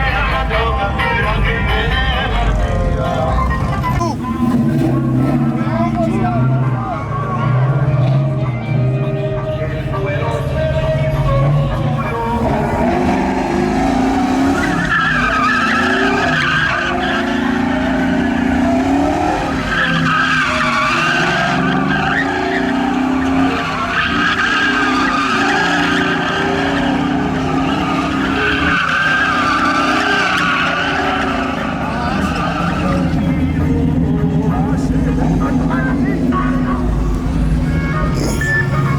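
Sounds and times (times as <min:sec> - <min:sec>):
car engine revving high: 0:03.4 - 0:38.9
tyres squealing: 0:10.3 - 0:38.9.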